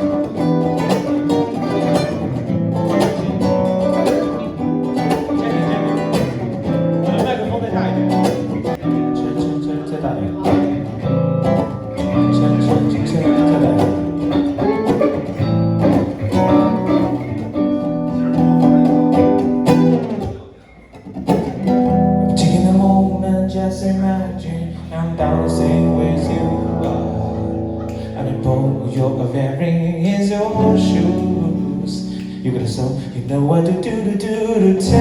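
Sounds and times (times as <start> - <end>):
acoustic guitar playing: 0.0 - 35.0
electric guitar playing: 0.0 - 35.0.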